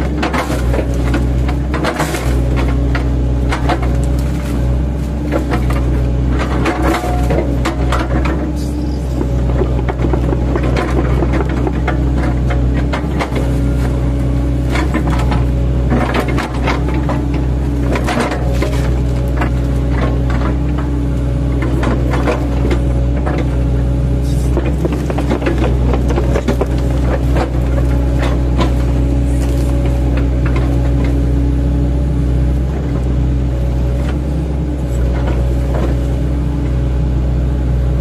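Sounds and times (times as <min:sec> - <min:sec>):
excavator diesel engine running: 0:00.0 - 0:38.0
wood cracking and crunching: 0:21.6 - 0:31.3.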